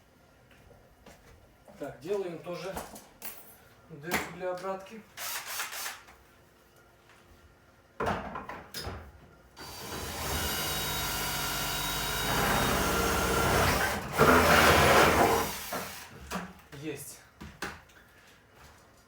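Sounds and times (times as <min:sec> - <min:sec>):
electric drill boring: 0:09.6 - 0:16.1.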